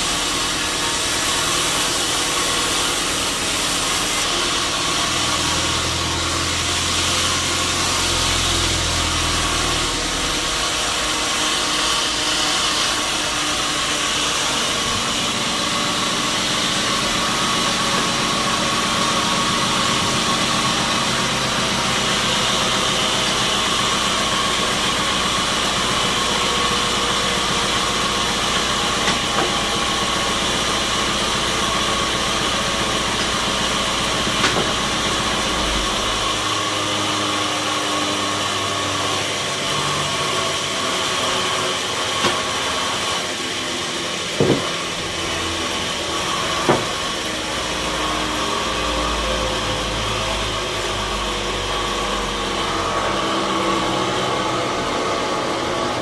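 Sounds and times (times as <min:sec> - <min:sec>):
machinery mechanical drone: 0:00.0 - 0:56.0.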